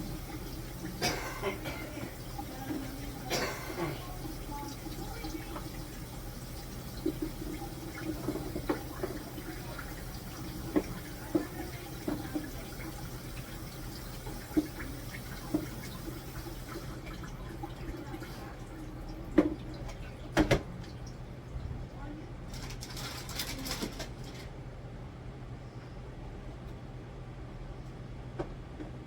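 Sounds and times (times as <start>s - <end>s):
items clinking in sink: 0.0s - 17.0s, 17.7s - 21.1s
tap water running into sink: 0.0s - 23.0s.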